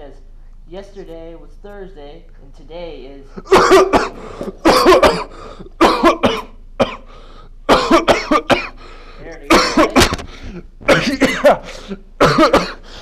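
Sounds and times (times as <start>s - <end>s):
man coughing harshly: 3.4s - 7.1s, 7.7s - 8.8s, 9.4s - 13.0s.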